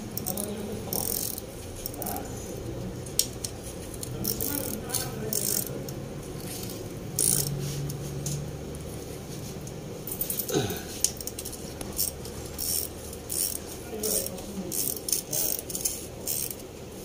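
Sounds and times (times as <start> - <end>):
metal tools clinking: 10.0 - 16.6.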